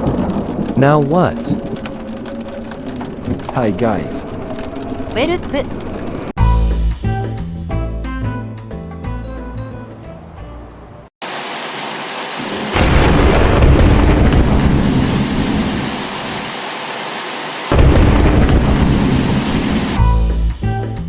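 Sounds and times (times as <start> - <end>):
rolling thunder: 0.0 - 4.8, 12.6 - 16.4, 17.7 - 20.0
background music: 5.2 - 5.7
heavy rain: 11.2 - 20.0
loud thunder clap: 12.6 - 16.1, 17.7 - 20.0.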